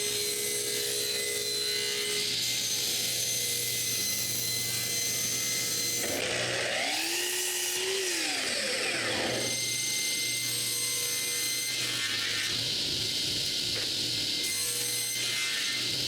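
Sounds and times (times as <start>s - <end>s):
power tool cutting wood: 0.0s - 16.0s.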